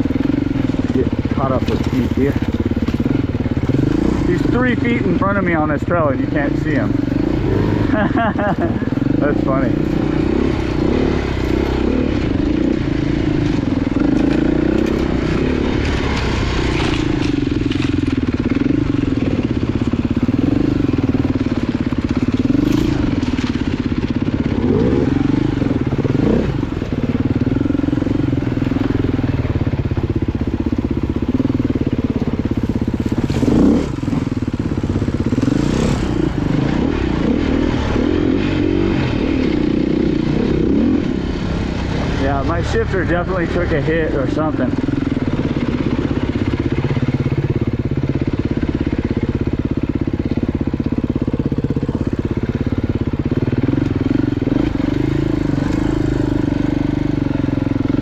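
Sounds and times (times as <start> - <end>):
bike knocking on rough trail: 0.0 - 4.3, 30.4 - 36.3
motorcycle engine revving: 0.0 - 58.0.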